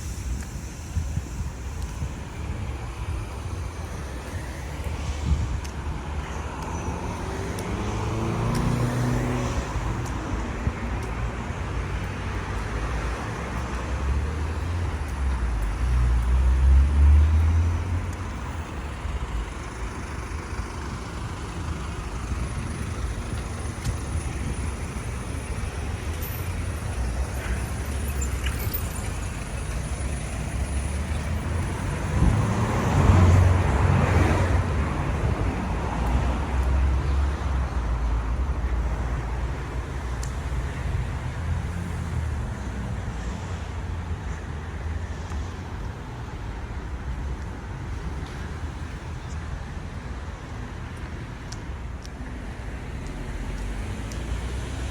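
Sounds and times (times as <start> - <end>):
vehicle pulling away: 0.0 - 38.6
cars passing close by: 0.0 - 54.9.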